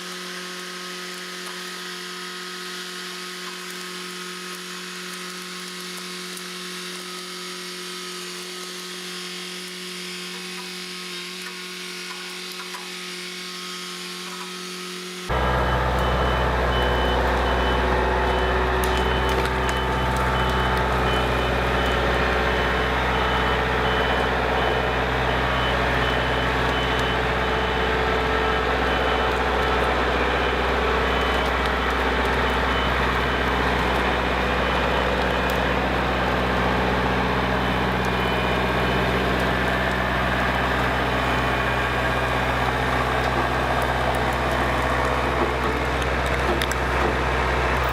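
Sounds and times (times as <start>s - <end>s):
buzzing machine drone: 0.0s - 47.9s
reversing alarm beeping: 15.3s - 44.7s
tractor diesel engine rumbling: 15.3s - 47.9s.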